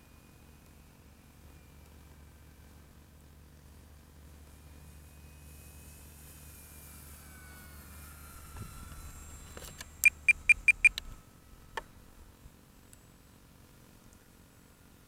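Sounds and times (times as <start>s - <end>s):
electric motor whine: 0.0s - 15.0s
high electronic beeps: 10.0s - 11.0s.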